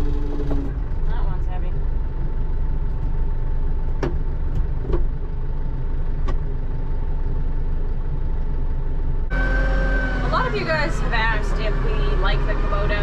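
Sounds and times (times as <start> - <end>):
diesel tractor engine running: 0.0 - 13.0.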